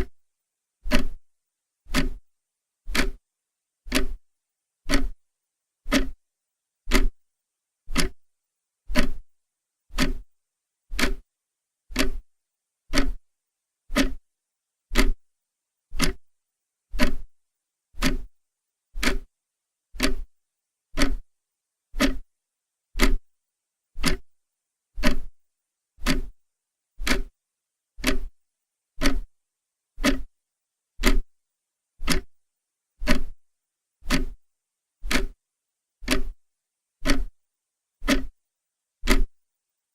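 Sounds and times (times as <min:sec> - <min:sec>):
clock ticking: 0:00.9 - 0:01.2, 0:01.9 - 0:02.2, 0:02.9 - 0:03.2, 0:03.9 - 0:04.2, 0:04.9 - 0:05.2, 0:05.9 - 0:06.2, 0:06.9 - 0:07.1, 0:07.9 - 0:08.2, 0:08.9 - 0:09.2, 0:09.9 - 0:10.2, 0:10.9 - 0:11.2, 0:11.9 - 0:12.2, 0:12.9 - 0:13.2, 0:13.9 - 0:14.2, 0:14.9 - 0:15.2, 0:16.0 - 0:16.2, 0:17.0 - 0:17.3, 0:18.0 - 0:18.3, 0:19.0 - 0:19.3, 0:20.0 - 0:20.3, 0:21.0 - 0:21.2, 0:22.0 - 0:22.2, 0:23.0 - 0:23.2, 0:24.0 - 0:24.3, 0:25.0 - 0:25.3, 0:26.0 - 0:26.3, 0:27.0 - 0:27.3, 0:28.0 - 0:28.3, 0:29.0 - 0:29.3, 0:30.0 - 0:30.3, 0:31.0 - 0:31.3, 0:32.0 - 0:32.3, 0:33.0 - 0:33.4, 0:34.0 - 0:34.4, 0:35.0 - 0:35.4, 0:36.0 - 0:36.4, 0:37.0 - 0:37.4, 0:38.0 - 0:38.3, 0:39.1 - 0:39.3.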